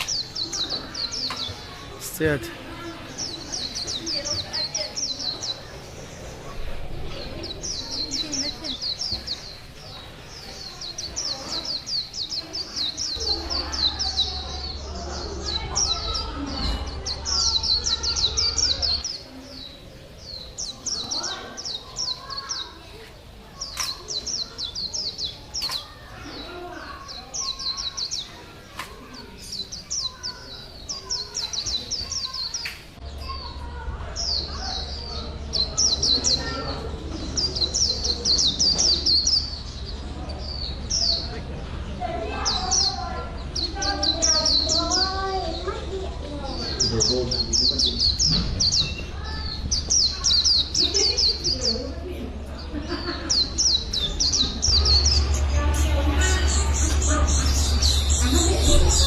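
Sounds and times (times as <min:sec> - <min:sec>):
bird chirping: 0:00.0 - 0:59.0
steady low hum: 0:53.8 - 0:59.0.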